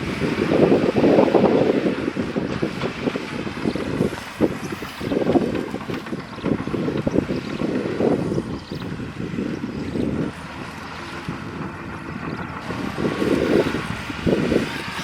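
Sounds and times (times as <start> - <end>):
heavy diesel engine surging: 0.0 - 15.0.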